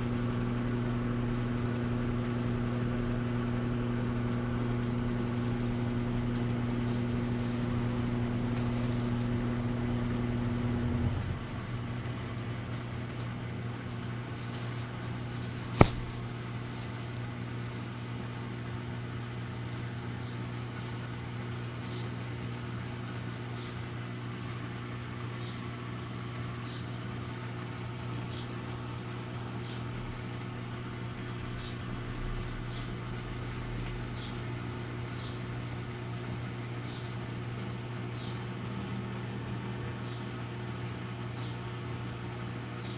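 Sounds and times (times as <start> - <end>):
washing machine humming: 0.0 - 42.9
sharp click: 15.8 - 16.2.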